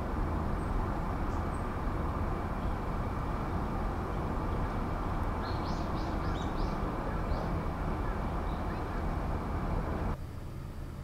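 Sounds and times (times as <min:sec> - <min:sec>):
low background rumble: 0:00.0 - 0:11.0
small bird chirping: 0:04.5 - 0:09.2.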